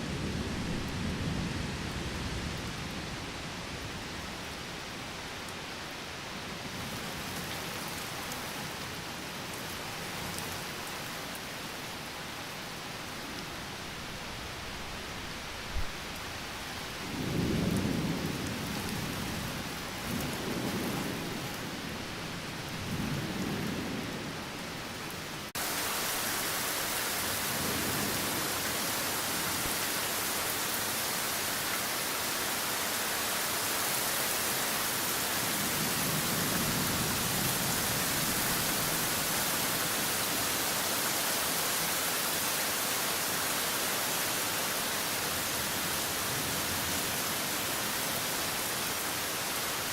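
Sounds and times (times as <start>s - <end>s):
rain: 0.0s - 49.9s.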